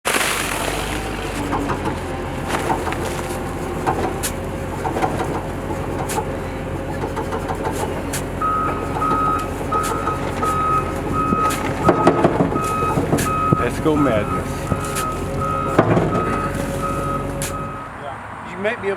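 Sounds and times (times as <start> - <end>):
heavy vehicle engine drone: 0.1 - 18.9
knocks and clanks: 0.8 - 17.8
backup alarm beeping: 8.3 - 18.0.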